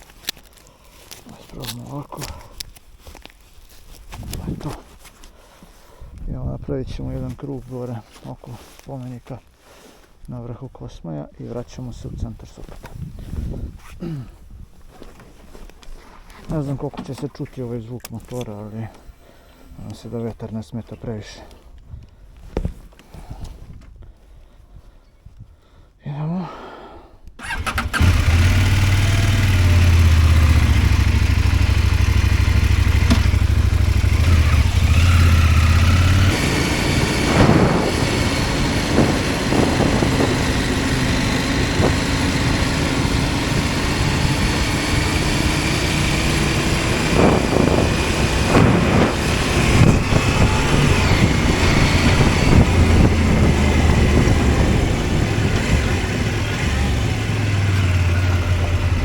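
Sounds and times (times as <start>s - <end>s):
wind noise on microphone: 3.9s - 5.0s, 12.0s - 14.9s, 32.6s - 57.4s
motorcycle engine revving: 27.4s - 59.0s.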